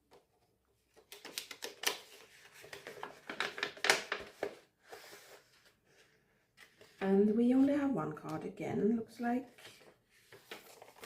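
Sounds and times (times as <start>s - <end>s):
packaging clicks and crinkles: 0.9s - 4.7s.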